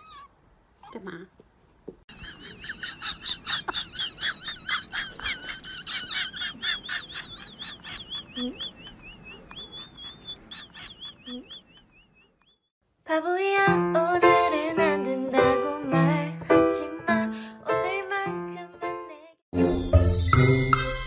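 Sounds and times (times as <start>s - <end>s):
rapid high chirps: 2.1s - 12.7s.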